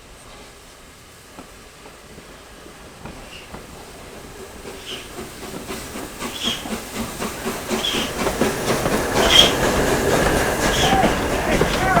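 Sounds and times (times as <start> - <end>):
steam hiss: 0.0 - 12.0
steam locomotive moving: 0.0 - 12.0
rhythmic clatter: 5.2 - 12.0.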